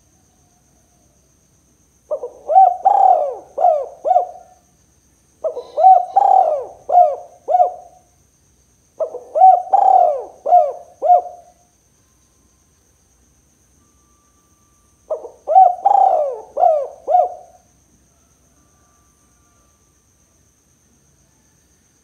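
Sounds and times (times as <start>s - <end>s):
dove cooing: 2.1s - 4.6s, 5.4s - 8.0s, 9.0s - 11.5s, 15.1s - 17.6s.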